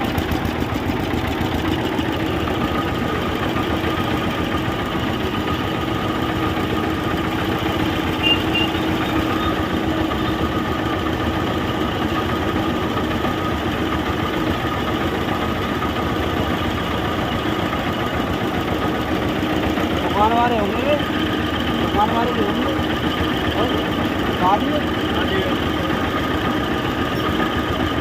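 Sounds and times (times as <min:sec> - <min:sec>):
engine running: 0:00.0 - 0:28.0
mixer grinder grinding: 0:00.0 - 0:28.0.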